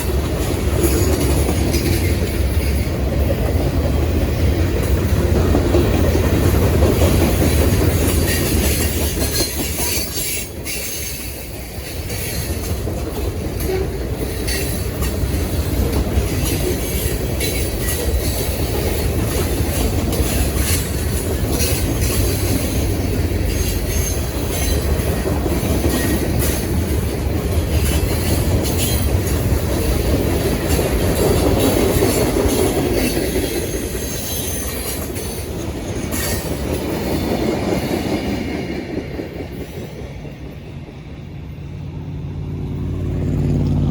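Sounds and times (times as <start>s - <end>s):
steel wheels clicking over rails: 0.0s - 41.7s
train cars rolling past: 0.0s - 43.9s
wheel flanges squealing: 7.8s - 12.9s, 13.6s - 26.8s.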